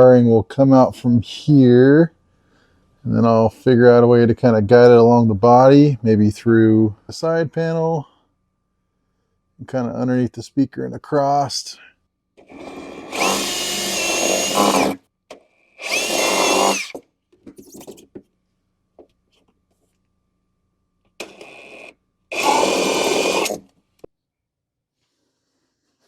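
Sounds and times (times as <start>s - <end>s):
electric drill whining: 12.4s - 15.0s, 15.8s - 17.0s, 21.2s - 23.7s.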